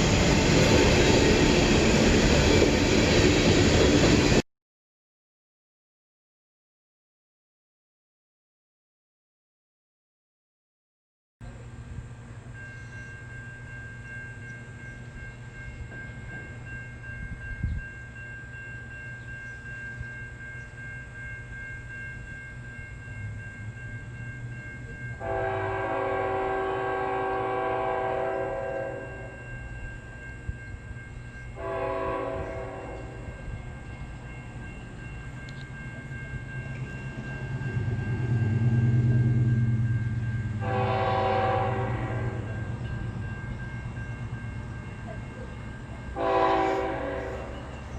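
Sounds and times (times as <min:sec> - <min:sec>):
low locomotive engine rumble: 0:11.4 - 0:47.9
train air horn blasts: 0:25.2 - 0:29.4, 0:31.6 - 0:33.3, 0:40.6 - 0:42.6, 0:46.2 - 0:47.7.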